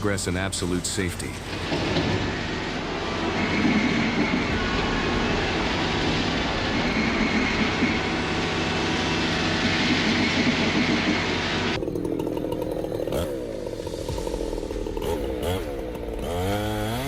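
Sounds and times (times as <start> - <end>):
engine-driven machinery running: 0.0 - 17.0.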